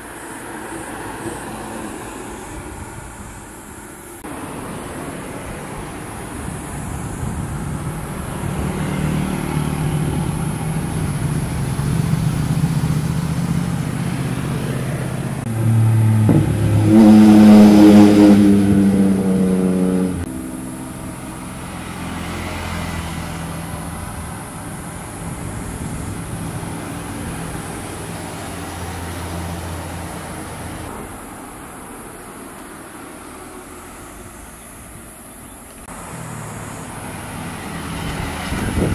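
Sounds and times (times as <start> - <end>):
engine droning: 0.0 - 38.9
vehicle accelerating past: 8.2 - 30.9, 35.8 - 38.9.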